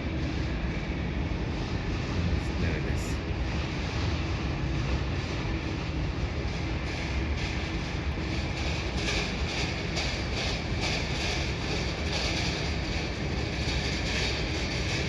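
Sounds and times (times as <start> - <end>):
jet engines roaring: 0.2 - 4.0.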